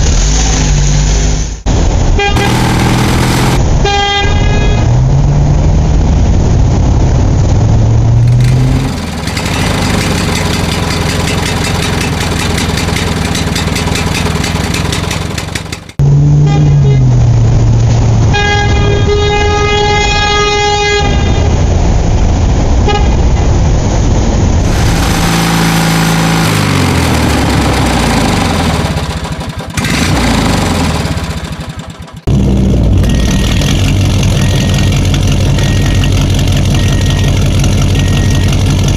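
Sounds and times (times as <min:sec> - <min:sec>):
car horn blast: 0:02.2 - 0:04.9, 0:16.4 - 0:17.1, 0:18.3 - 0:21.5
vehicle engines revving: 0:02.4 - 0:19.1, 0:24.0 - 0:38.9.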